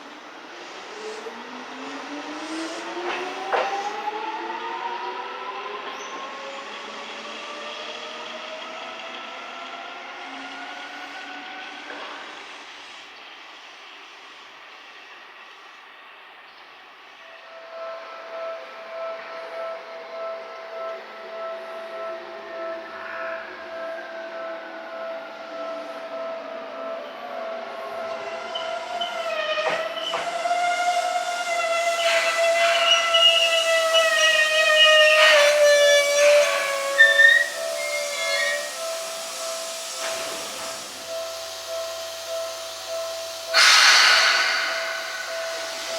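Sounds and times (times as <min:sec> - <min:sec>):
electric train whining: 0:00.0 - 0:45.9
electric train motors whining: 0:25.3 - 0:45.9.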